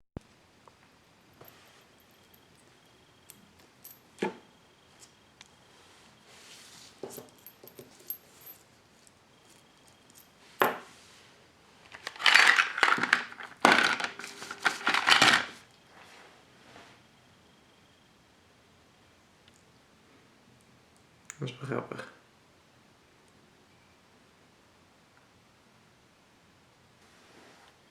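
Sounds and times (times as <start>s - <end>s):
hard toys clattering and rattling: 11.8s - 15.6s.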